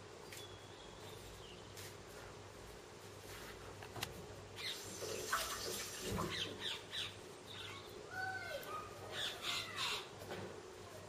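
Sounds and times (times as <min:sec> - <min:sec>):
small birds squeaking: 0:04.5 - 0:10.2.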